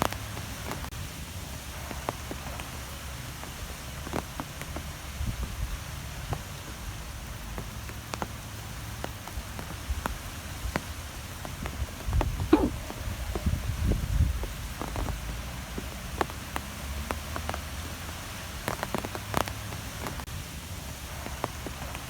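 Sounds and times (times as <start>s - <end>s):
low rumble of wind: 0.0s - 22.0s.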